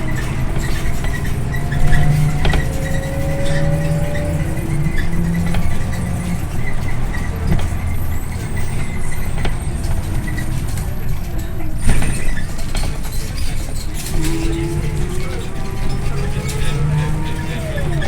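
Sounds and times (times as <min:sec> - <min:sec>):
bus diesel engine drone: 0:00.0 - 0:18.0
road and body noise: 0:00.0 - 0:18.0.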